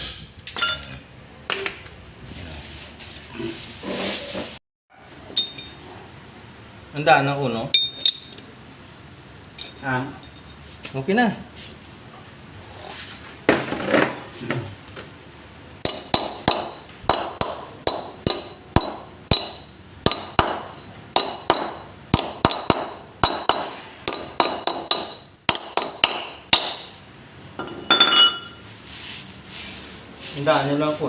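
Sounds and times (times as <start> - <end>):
hammer striking metal: 15.8 - 27.0.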